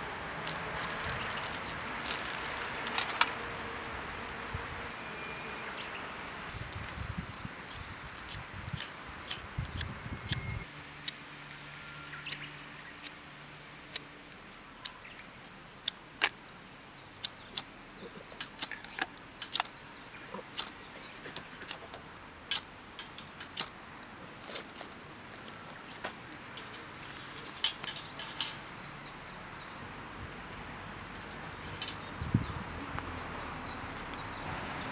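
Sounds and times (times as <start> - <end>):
firewood crackling: 0.0 - 16.3, 18.5 - 34.9
sharp pops of burning wood: 6.6 - 10.4, 18.5 - 19.8.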